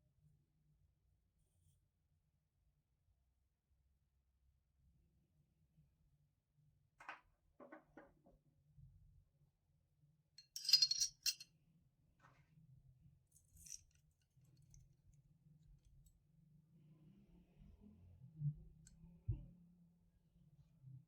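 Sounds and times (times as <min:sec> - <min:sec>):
light metal clink: 0:10.4 - 0:11.4
metal part jingling on hard surface: 0:10.4 - 0:11.4.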